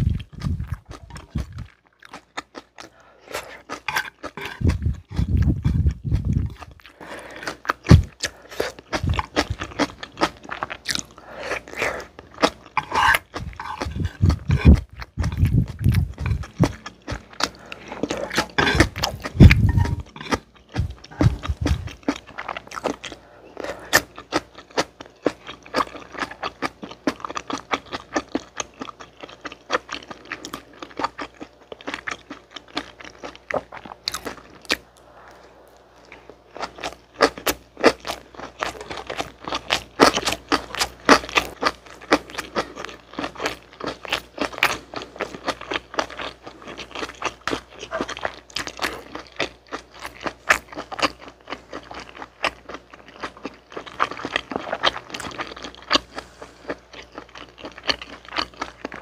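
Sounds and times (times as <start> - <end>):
close chewing with wet mouth clicks: 3.6 - 23.2.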